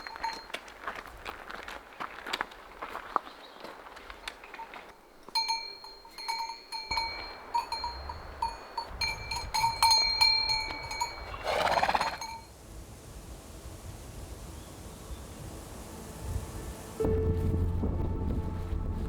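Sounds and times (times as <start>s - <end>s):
livestock bells clanging: 0.0s - 1.0s, 4.2s - 12.5s.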